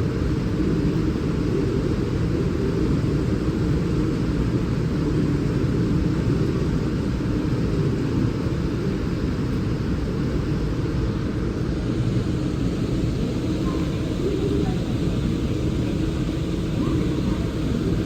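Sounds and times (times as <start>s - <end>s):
station machinery running: 11.6s - 18.0s
trains running: 11.8s - 18.0s.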